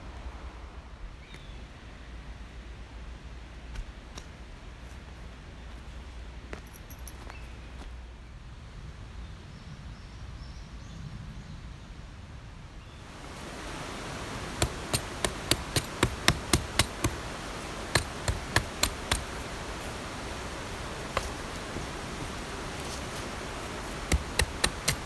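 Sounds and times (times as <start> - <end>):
steady hiss: 13.0 - 25.0
sharp knocks: 13.2 - 25.0.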